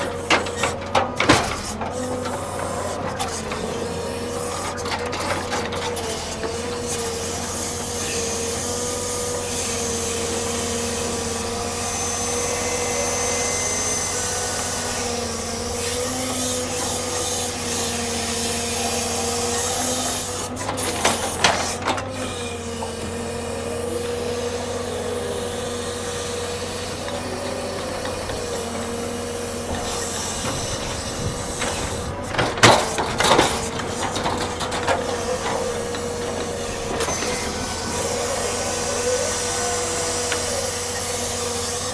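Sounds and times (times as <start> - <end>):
heavy machinery whining: 0.0 - 41.9
clattering knocks: 27.8 - 38.0.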